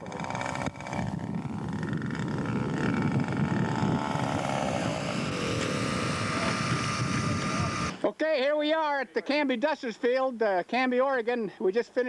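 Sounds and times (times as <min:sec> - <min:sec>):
wind noise on microphone: 0:00.0 - 0:08.0
airplane engine flying by: 0:01.5 - 0:08.0.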